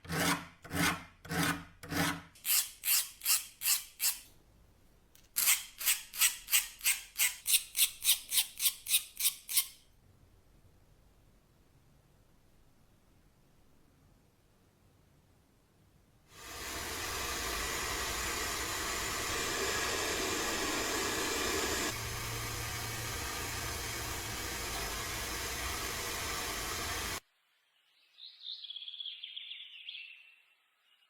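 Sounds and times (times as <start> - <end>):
spraying air hiss: 16.4 - 27.2.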